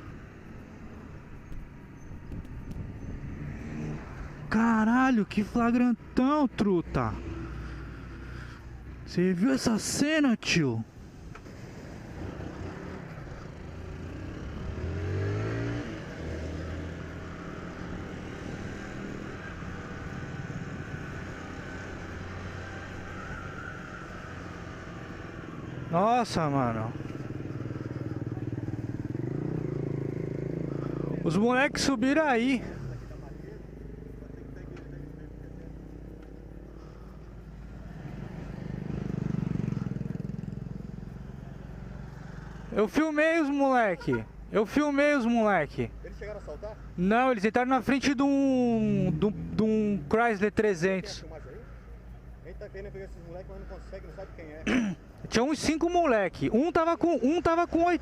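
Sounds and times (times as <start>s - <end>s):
motorcycle engine accelerating: 11.4s - 31.9s, 32.6s - 42.8s.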